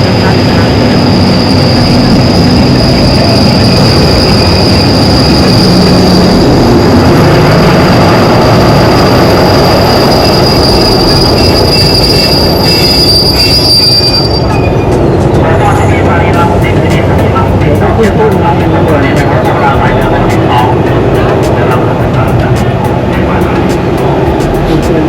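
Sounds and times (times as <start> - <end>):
train wheel squeal: 0.0 - 15.3
rumble of rolling train: 0.0 - 25.0
train knocks: 0.0 - 25.0.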